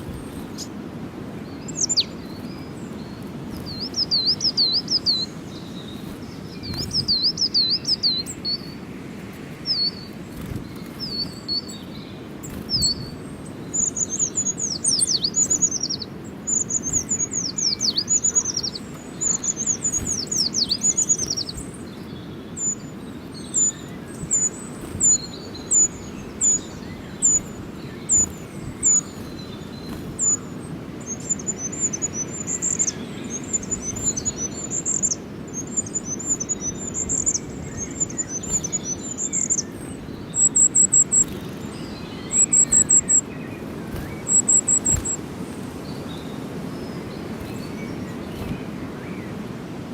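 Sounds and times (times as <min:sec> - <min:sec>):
low background noise: 0:00.0 - 0:49.9
songbirds chirping: 0:00.0 - 0:49.9.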